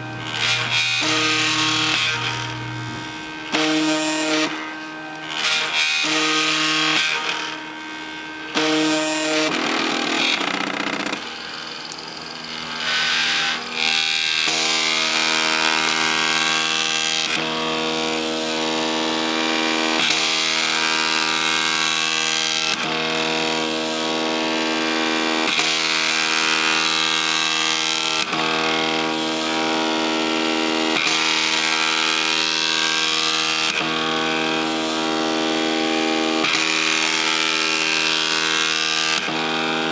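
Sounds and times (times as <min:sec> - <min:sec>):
printer stepper motors whining: 0:08.8 - 0:14.4.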